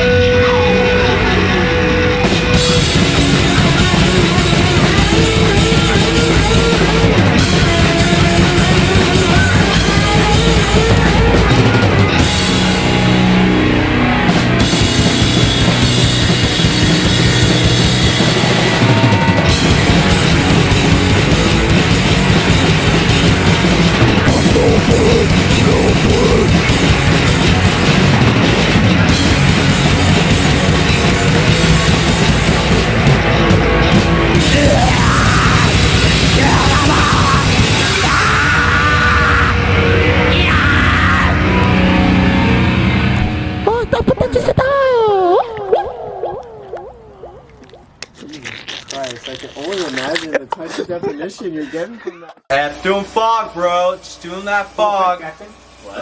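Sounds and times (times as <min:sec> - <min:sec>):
distorted electric guitars: 0:00.0 - 0:44.7
bass guitar: 0:00.0 - 0:48.4
drum kit with bass drum: 0:01.4 - 0:43.3.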